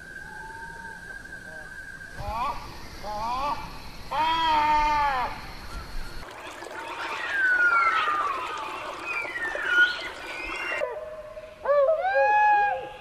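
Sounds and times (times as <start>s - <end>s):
honking bird call: 6.4s - 10.8s
birds whistling: 6.8s - 10.8s.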